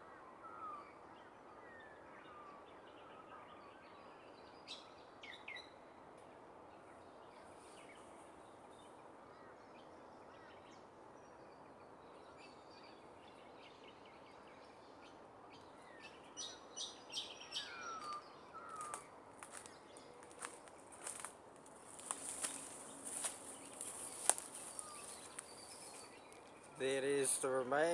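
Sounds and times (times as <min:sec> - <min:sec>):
faint outdoor hiss: 0:00.0 - 0:27.9
birds calling: 0:16.4 - 0:27.9.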